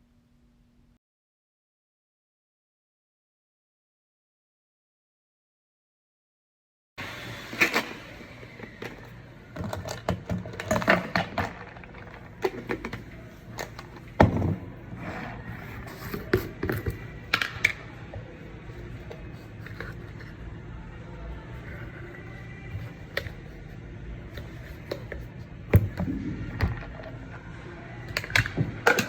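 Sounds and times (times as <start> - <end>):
low steady hum: 0.0 - 1.0.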